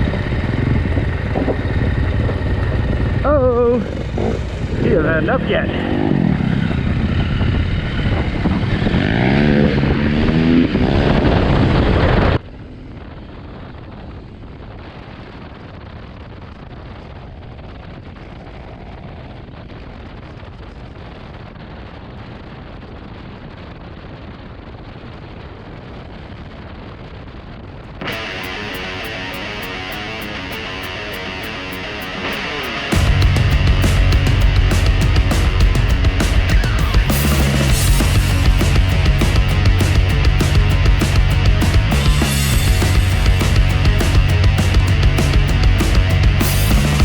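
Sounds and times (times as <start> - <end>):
motorcycle engine revving: 0.0 - 12.4, 28.0 - 47.0
dull rushing noise: 0.0 - 47.0.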